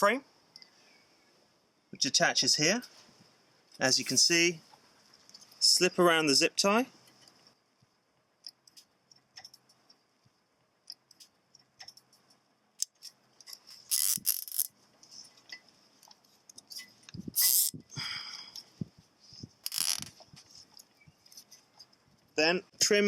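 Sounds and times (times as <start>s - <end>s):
zip tie rasping pulls: 12.8s - 14.8s, 17.1s - 17.9s, 19.4s - 20.9s
plastic strap clicks and rattles: 19.6s - 20.2s.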